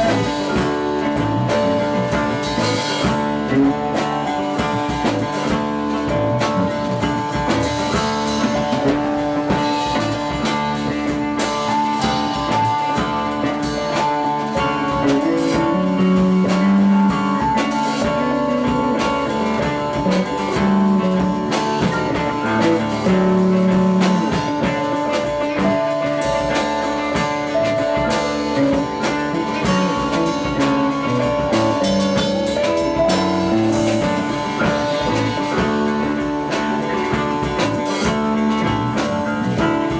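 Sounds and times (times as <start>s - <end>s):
drum kit: 0.0s - 39.9s
electric guitar: 0.0s - 39.9s.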